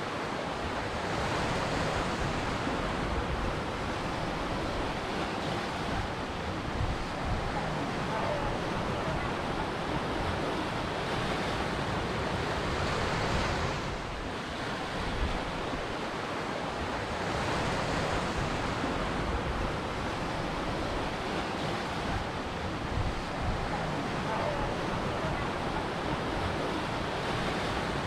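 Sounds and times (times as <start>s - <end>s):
ocean waves breaking: 0.0s - 28.0s.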